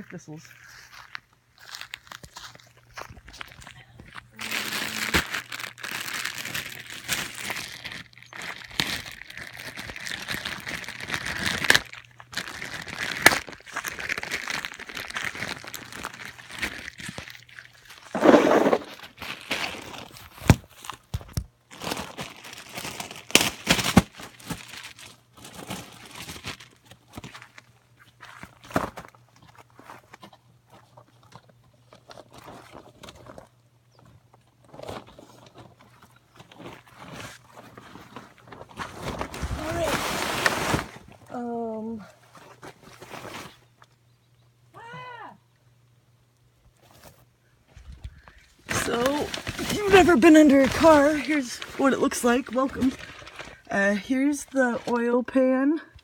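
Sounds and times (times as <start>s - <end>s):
dry material crunching rustle: 0.0s - 43.9s, 47.9s - 55.1s
faint steady hum: 18.8s - 56.0s.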